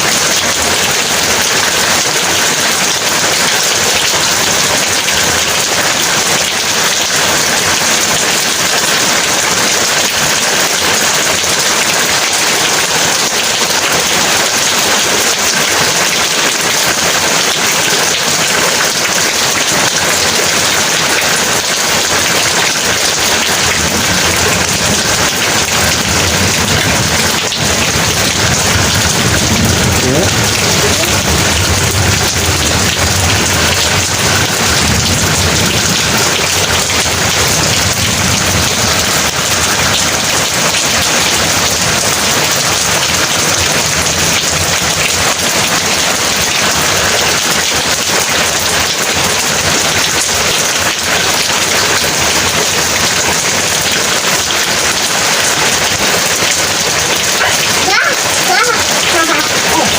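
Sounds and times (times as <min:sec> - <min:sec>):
heavy rain pouring: 0:00.0 - 0:59.9
thunder rumbling: 0:23.0 - 0:45.0.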